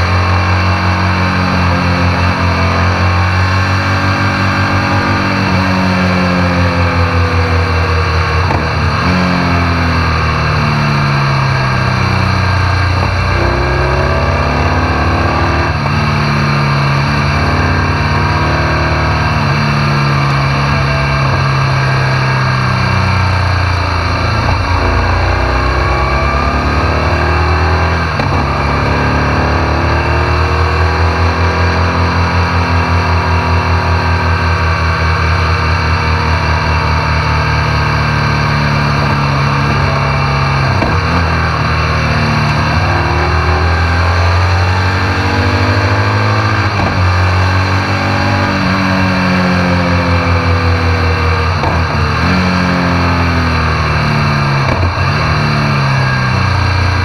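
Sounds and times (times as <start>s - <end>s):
motorcycle engine accelerating: 0.0s - 57.0s
wind and road noise: 0.0s - 57.0s.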